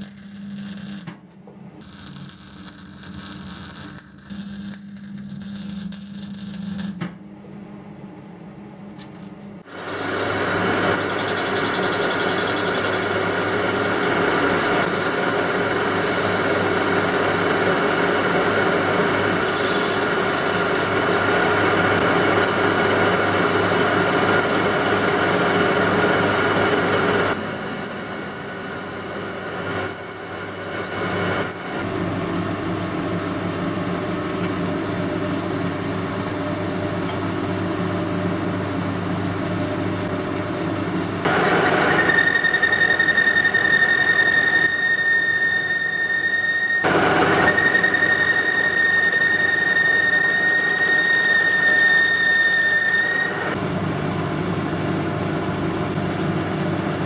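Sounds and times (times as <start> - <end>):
machine tool running: 0.0 - 1.1, 1.8 - 7.0, 9.7 - 27.8
high squeal of metal cutting: 10.0 - 21.2, 23.5 - 31.9, 41.3 - 53.6.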